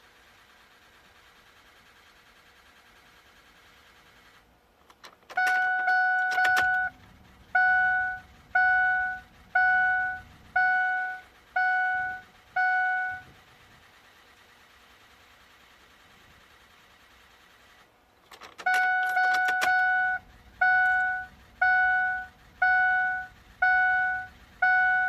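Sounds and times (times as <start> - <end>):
ignition key clicking: 4.8 - 6.9, 18.2 - 20.0
dashboard warning chime: 5.3 - 7.0, 7.6 - 13.3, 18.6 - 25.0.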